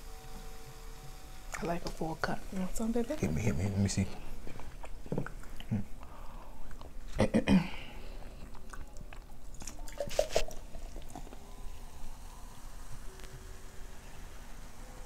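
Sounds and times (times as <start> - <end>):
biting and chewing food: 8.2 - 11.4.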